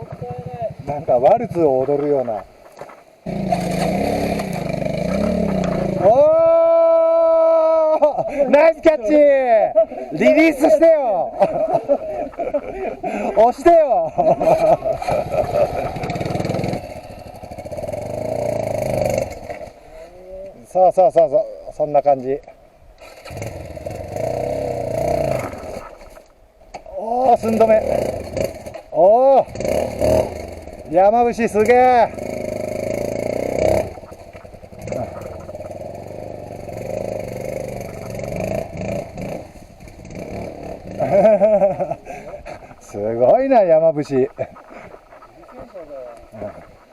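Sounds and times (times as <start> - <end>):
motorcycle engine revving: 0.0 - 1.2, 3.2 - 6.2, 14.2 - 20.0, 23.0 - 26.0, 27.4 - 42.1.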